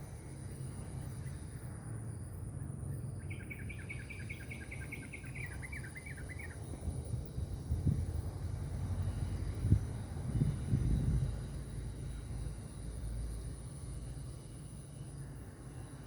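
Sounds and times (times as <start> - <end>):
steady low rumble: 0.0 - 16.0
thin high-pitched whine: 0.0 - 16.0
bird chattering song: 3.2 - 6.6.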